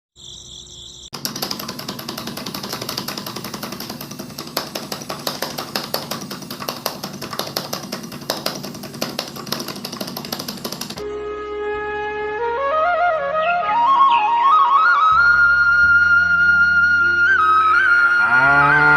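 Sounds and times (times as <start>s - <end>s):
small motorised mechanism clattering: 1.2s - 11.0s
flute music: 11.0s - 18.9s.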